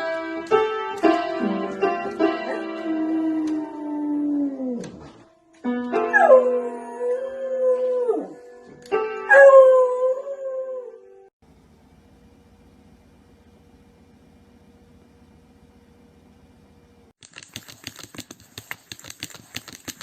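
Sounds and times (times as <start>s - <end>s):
piano notes: 0.0s - 10.1s
dog howling: 2.4s - 5.2s, 6.1s - 8.5s.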